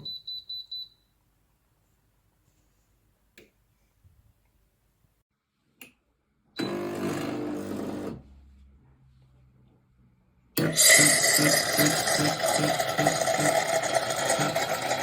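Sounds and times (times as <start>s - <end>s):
espresso machine pump buzzing: 10.6s - 15.0s.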